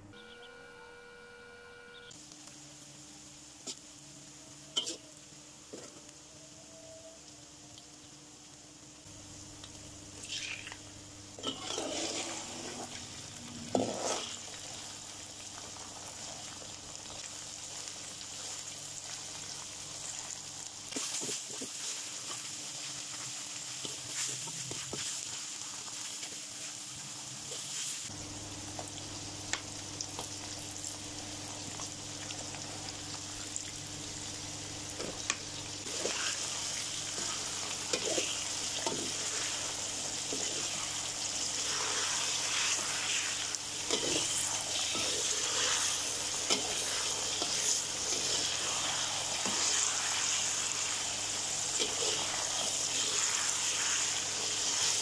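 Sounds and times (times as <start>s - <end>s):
chicken sizzling in oil: 2.1s - 55.0s
metal spatula scraping wok: 11.4s - 13.0s, 13.7s - 14.4s.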